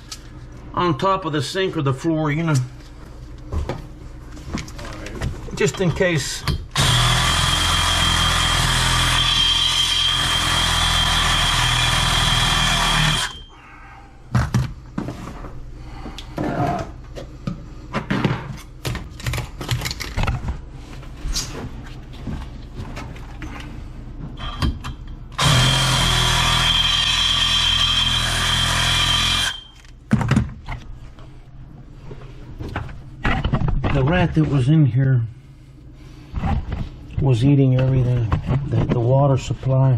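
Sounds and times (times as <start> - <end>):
power tool whining: 6.7 - 13.6, 25.4 - 29.8.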